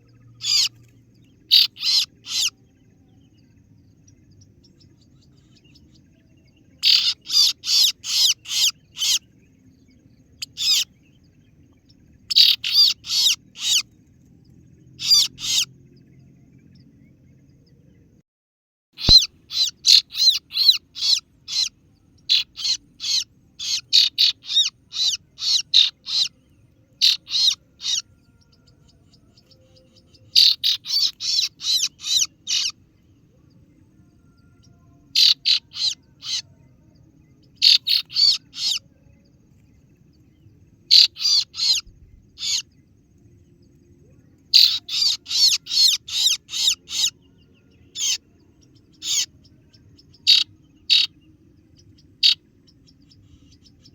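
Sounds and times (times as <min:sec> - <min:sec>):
sharp high bird chirps: 0:00.0 - 0:03.3, 0:06.6 - 0:13.9, 0:14.9 - 0:15.7, 0:19.0 - 0:33.1, 0:34.6 - 0:36.5, 0:37.2 - 0:38.8, 0:40.8 - 0:43.0, 0:44.5 - 0:53.9.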